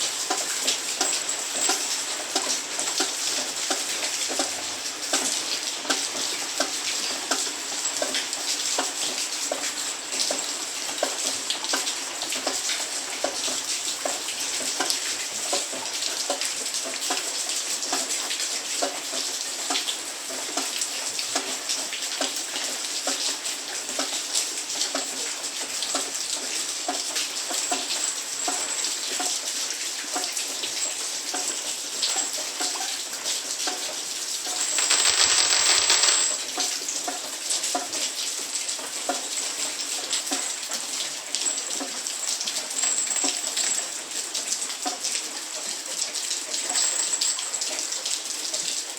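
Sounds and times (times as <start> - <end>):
raindrops clicking on hard surfaces: 34.6 - 36.4.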